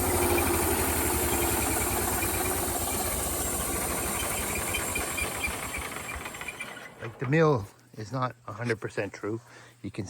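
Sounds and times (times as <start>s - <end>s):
gas engine running: 0.0s - 7.3s.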